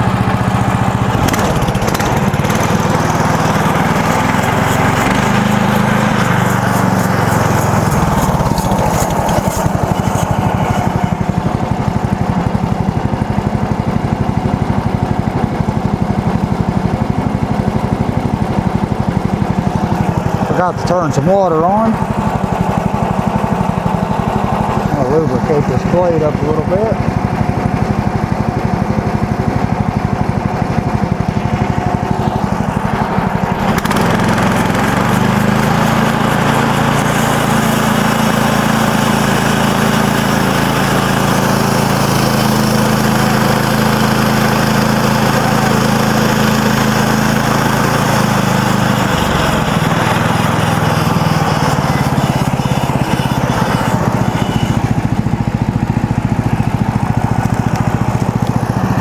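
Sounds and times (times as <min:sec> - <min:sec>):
sawmill engine running: 0:00.0 - 0:59.0
band blade cutting log hiss: 0:01.2 - 0:11.3, 0:33.4 - 0:39.4.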